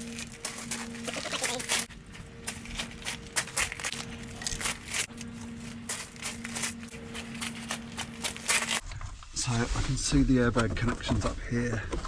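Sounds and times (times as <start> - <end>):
rubbish rustling and clicking: 0.0 - 8.8.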